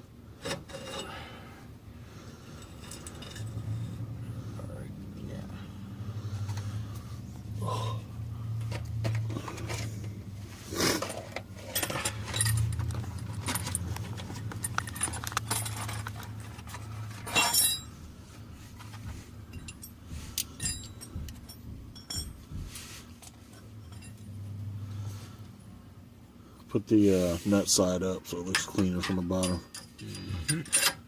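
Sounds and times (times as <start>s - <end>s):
low steady hum: 0.0s - 31.0s
metal clatters: 11.0s - 18.0s
metallic clinks of hand tools: 19.5s - 22.4s.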